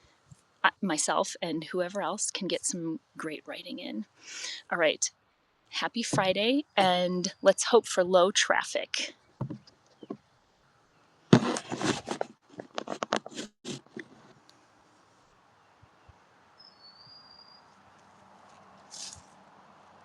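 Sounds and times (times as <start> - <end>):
faint outdoor hush: 4.0 - 5.8
rustling and knocking near phone: 9.4 - 10.2
high bird whistle: 16.6 - 17.7.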